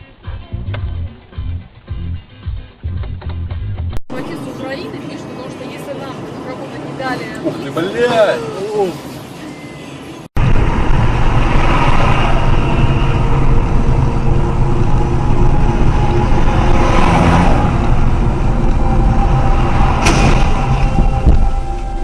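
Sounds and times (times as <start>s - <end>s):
road noise: 2.9s - 22.0s
vehicle engine: 3.5s - 8.3s, 8.9s - 22.0s.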